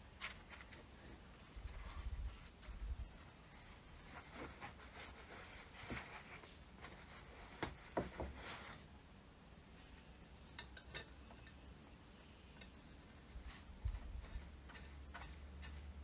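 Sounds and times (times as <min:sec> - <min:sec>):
scraping rub: 0:13.4 - 0:16.0.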